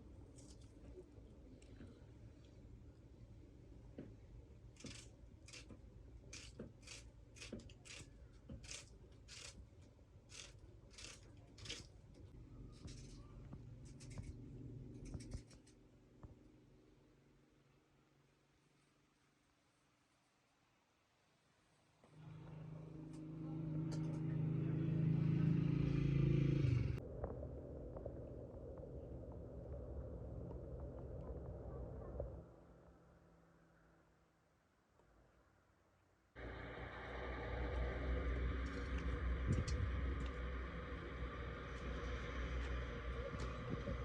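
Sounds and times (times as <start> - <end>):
engine running: 22.1 - 27.0, 36.4 - 44.0.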